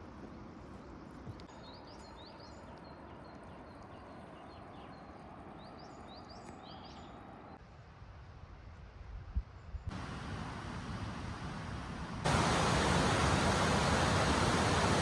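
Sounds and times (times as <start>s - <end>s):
songbird chirping: 0.7s - 7.6s
distant falling water: 9.9s - 15.0s.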